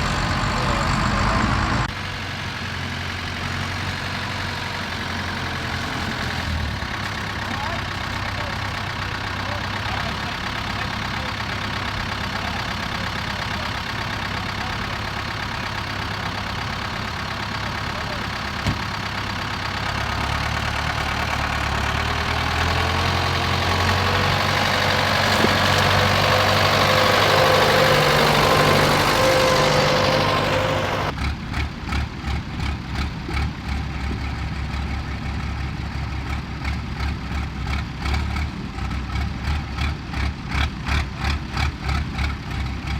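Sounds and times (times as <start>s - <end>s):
tractor engine approaching: 0.0s - 42.9s
tractor engine idling: 0.0s - 42.9s.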